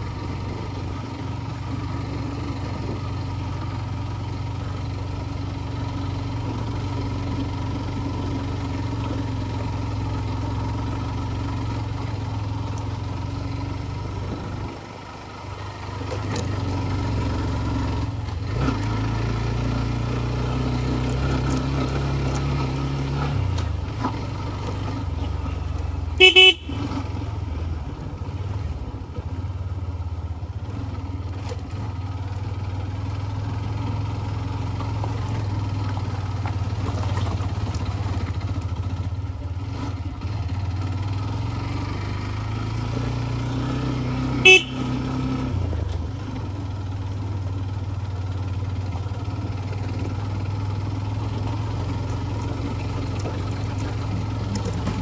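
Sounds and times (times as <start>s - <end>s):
scooter engine running: 0.0s - 55.0s
horn beeps: 26.2s - 27.0s, 44.4s - 45.0s.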